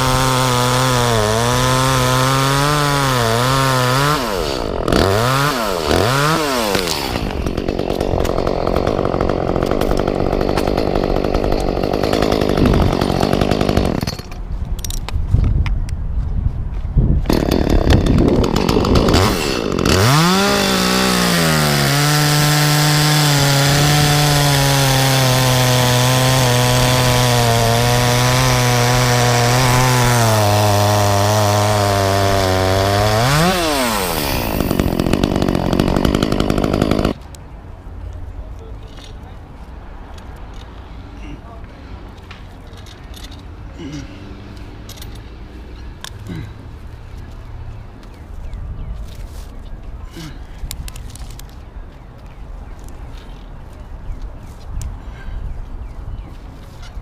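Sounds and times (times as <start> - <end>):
chainsaw cutting wood: 0.0 - 14.4, 17.3 - 37.2
chainsaw running: 0.0 - 14.4, 17.3 - 37.2.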